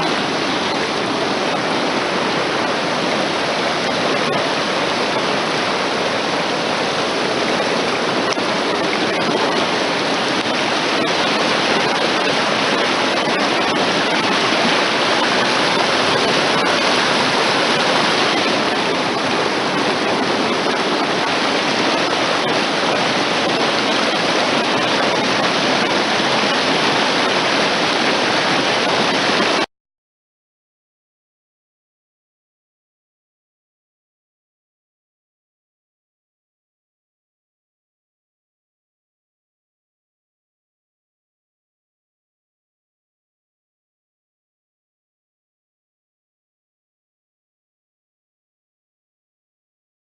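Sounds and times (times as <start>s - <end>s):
mountain stream flowing: 0.0s - 29.7s.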